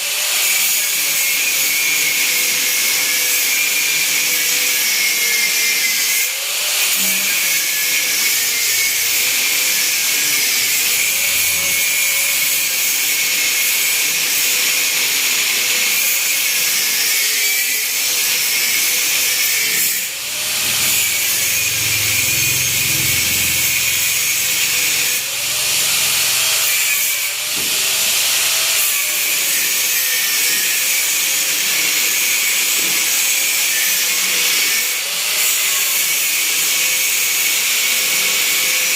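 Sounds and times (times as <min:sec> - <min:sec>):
power tool running with harsh hiss: 0:00.0 - 0:38.9.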